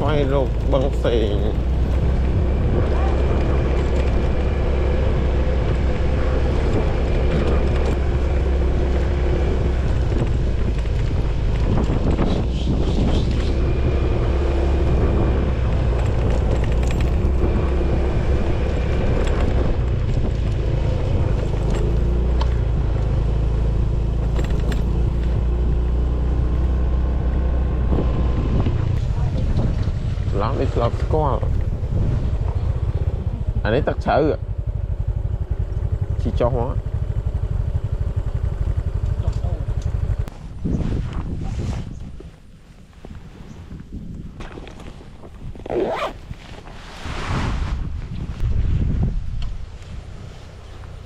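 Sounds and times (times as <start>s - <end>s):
vehicle engine running: 0.0s - 40.4s.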